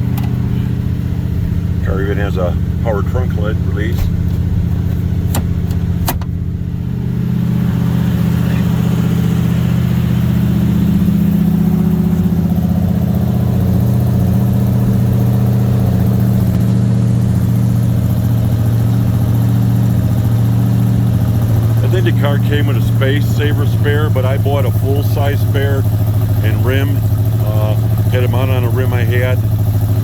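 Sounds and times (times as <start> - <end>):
trunk lid latch clicks: 0.0 - 0.6, 3.9 - 6.4
car engine idling: 0.0 - 30.0.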